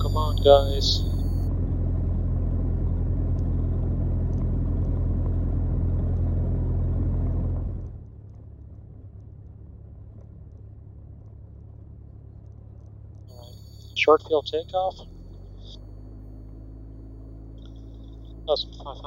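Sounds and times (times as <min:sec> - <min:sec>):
aircraft engine and propeller hum: 0:13.4 - 0:19.0.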